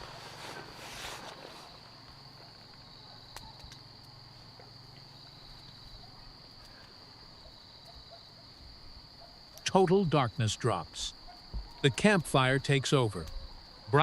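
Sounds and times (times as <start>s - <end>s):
night insects trilling: 0.0s - 14.0s.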